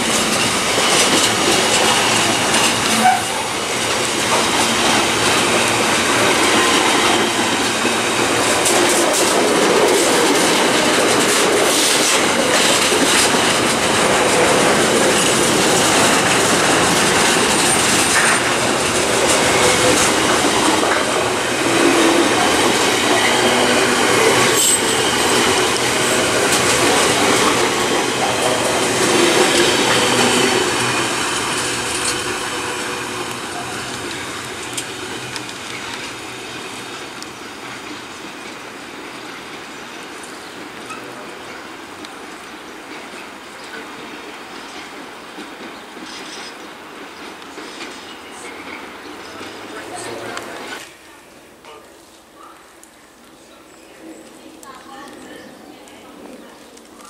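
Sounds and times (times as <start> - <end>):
wheels clicking over rail joints: 0.0 - 41.2
train wheels rumbling on rails: 0.0 - 51.1.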